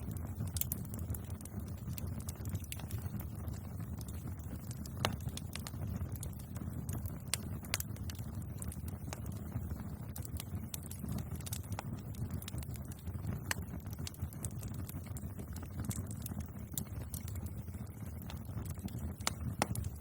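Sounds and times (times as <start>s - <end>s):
bonfire crackling and popping: 0.0s - 20.0s
low rumble of flames: 0.0s - 20.0s.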